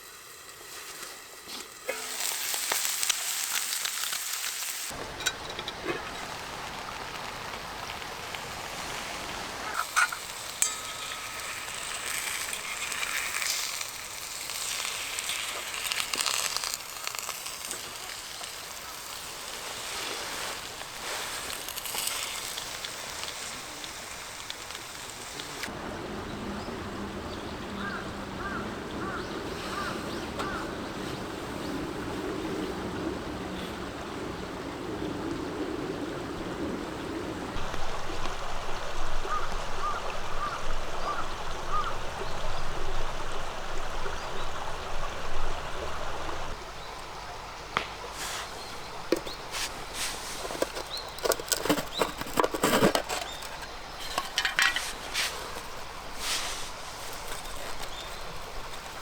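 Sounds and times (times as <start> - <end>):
food sizzling in a frying pan: 0.0 - 25.7
small stream flowing: 0.0 - 59.0.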